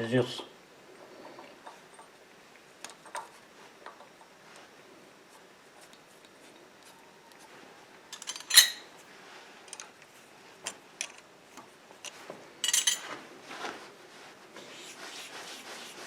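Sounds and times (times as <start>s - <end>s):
steel tool clinking and clattering: 8.2s - 8.9s, 12.6s - 13.1s.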